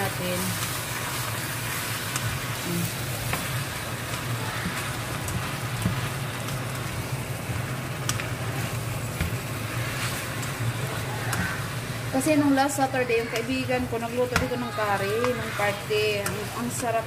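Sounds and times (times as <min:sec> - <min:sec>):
chicken sizzling in a pan: 0:00.0 - 0:17.0
spatula clicking against pan: 0:13.3 - 0:13.6, 0:16.1 - 0:16.8.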